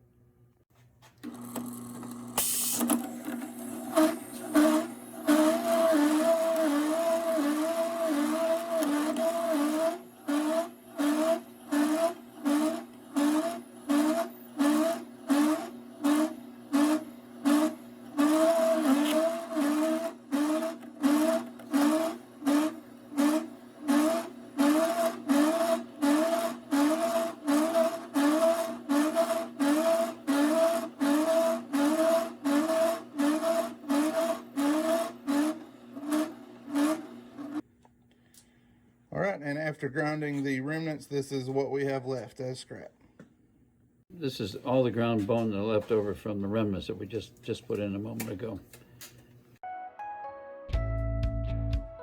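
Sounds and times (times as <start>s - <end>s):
grinder motor pulsing hum: 1.2s - 37.6s.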